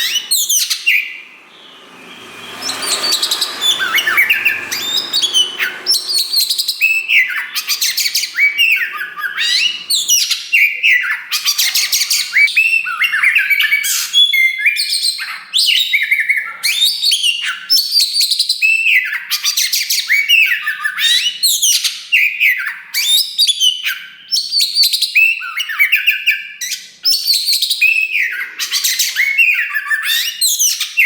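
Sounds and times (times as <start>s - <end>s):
magpie-robin singing: 0.0s - 15.4s.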